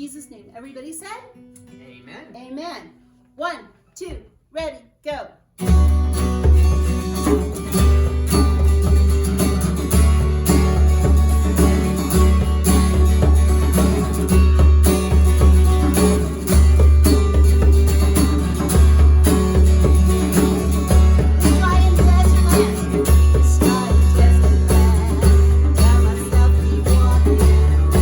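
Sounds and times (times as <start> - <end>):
strummed acoustic guitar: 5.6 - 28.0
steady bass beat: 5.7 - 28.0.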